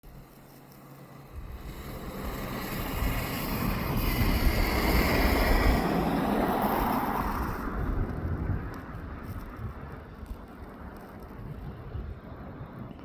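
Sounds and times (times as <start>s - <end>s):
diesel locomotives rumbling: 0.2s - 10.0s
wind buffeting microphone: 1.2s - 13.0s.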